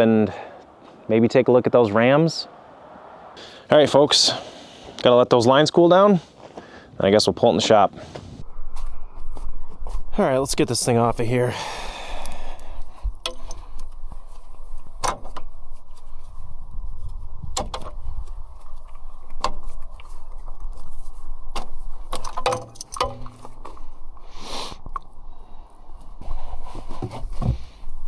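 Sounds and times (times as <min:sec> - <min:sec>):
metal clicks and clanks: 0:13.2 - 0:13.9, 0:21.6 - 0:23.8.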